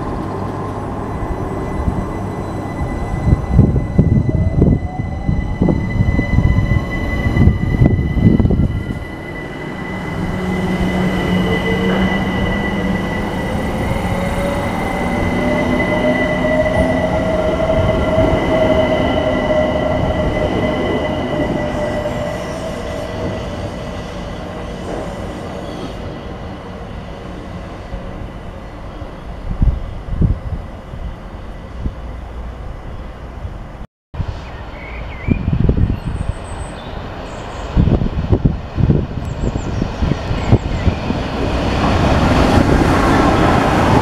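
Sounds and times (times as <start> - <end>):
electric train rumble: 0.0 - 33.8, 35.5 - 44.0
steady high tone: 1.0 - 24.4.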